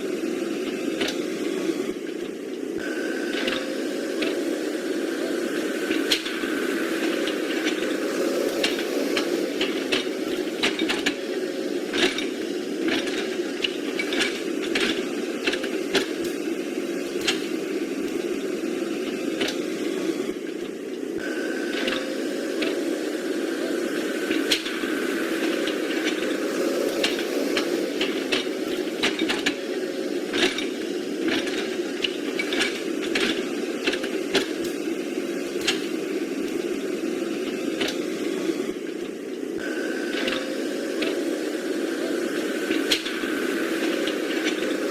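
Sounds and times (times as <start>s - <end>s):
clicks and knocks of moving parts: 7.0s - 11.3s, 11.9s - 18.3s, 24.2s - 38.2s, 42.1s - 44.9s
toy electric motors whirring: 21.2s - 44.9s.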